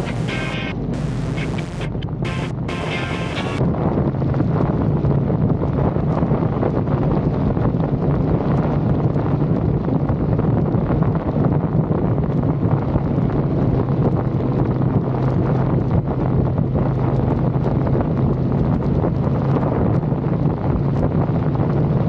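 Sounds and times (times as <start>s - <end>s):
motorcycle engine drone: 0.0s - 5.5s
wind buffeting microphone: 3.6s - 22.0s.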